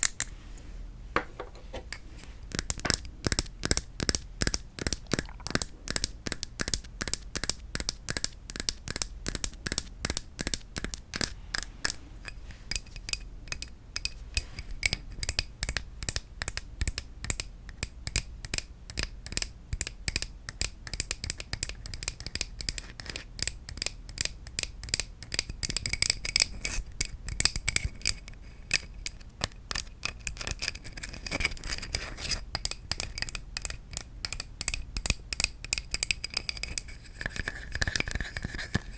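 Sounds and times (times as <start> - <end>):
wooden objects tapping: 1.2 - 1.9.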